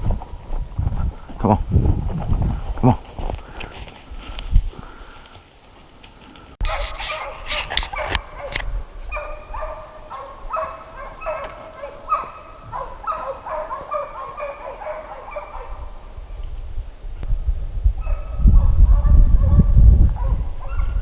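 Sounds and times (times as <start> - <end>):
hounds baying: 6.6 - 16.0, 18.0 - 21.0.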